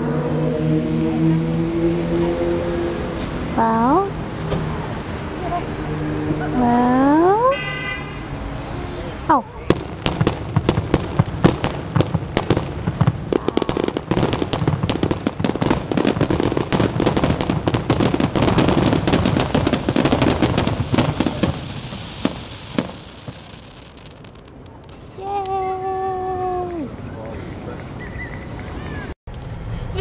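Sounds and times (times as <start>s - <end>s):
continuous rumble: 0.0s - 30.0s
fireworks cracking and banging: 8.1s - 27.2s.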